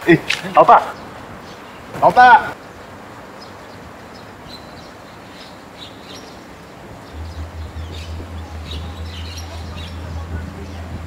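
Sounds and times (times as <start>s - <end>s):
faint outdoor hiss: 0.0s - 11.0s
birds chirping: 0.6s - 11.0s
low steady hum: 7.1s - 11.0s.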